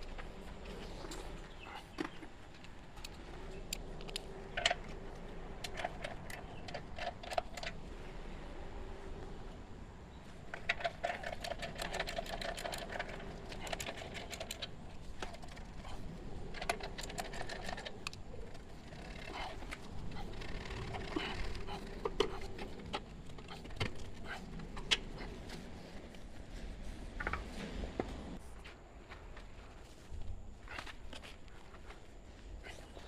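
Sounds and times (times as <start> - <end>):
rapid mechanical clicking: 10.4 - 25.5.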